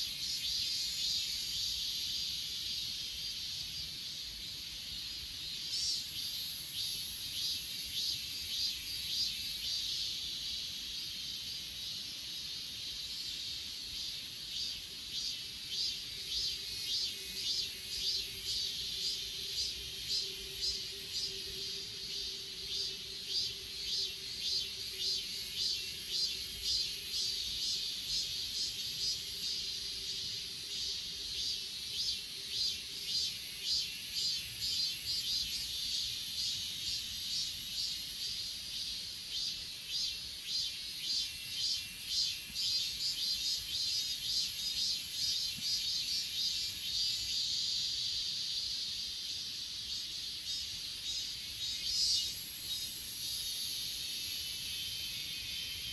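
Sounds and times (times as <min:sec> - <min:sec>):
grass insects chirping: 0:00.0 - 0:55.9
high insect trill: 0:00.0 - 0:55.9.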